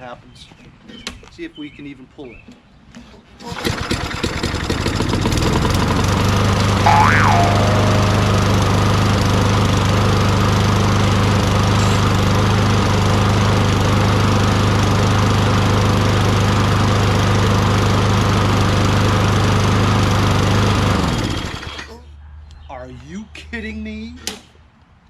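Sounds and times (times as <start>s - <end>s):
lawn mower engine running: 3.5s - 21.9s.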